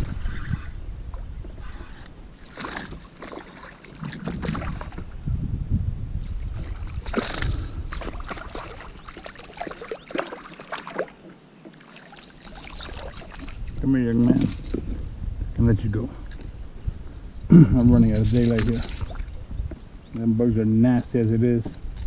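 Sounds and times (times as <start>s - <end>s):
knocks and clicks handling fish: 18.4s - 20.2s.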